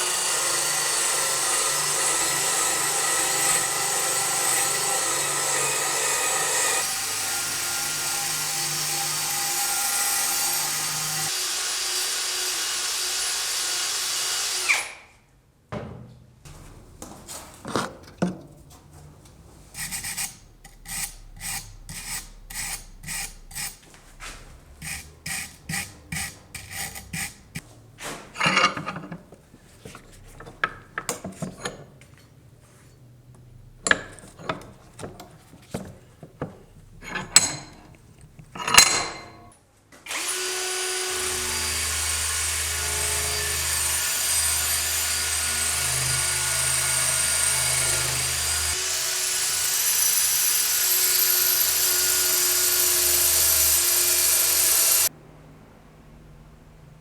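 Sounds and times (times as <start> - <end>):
scraping rust off a knife: 19.7 - 27.6
power tool whining: 40.1 - 55.1.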